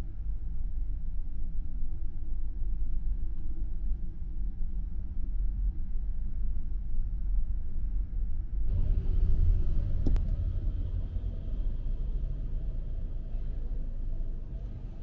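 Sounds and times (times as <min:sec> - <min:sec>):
street traffic rumble: 0:08.7 - 0:15.0.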